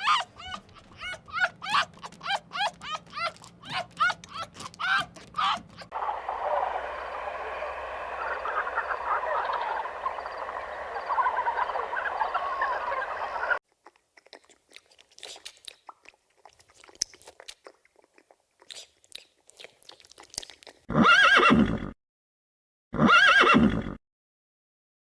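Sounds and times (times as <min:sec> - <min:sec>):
chorus of small animal calls: 0:04.9 - 0:13.6
faint crunching clicks: 0:06.0 - 0:13.6.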